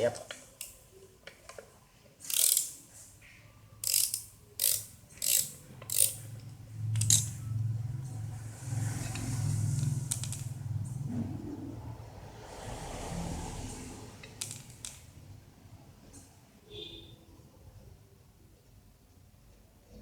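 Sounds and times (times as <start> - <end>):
ratchet wrench clicking: 2.2 - 2.8, 3.8 - 7.4, 9.8 - 10.6, 14.2 - 15.0.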